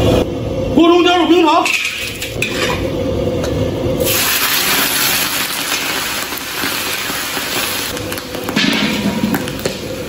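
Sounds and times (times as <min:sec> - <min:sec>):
sugar sizzling in hot oil: 0:04.0 - 0:08.5
meat frying with loud hiss: 0:04.0 - 0:10.0.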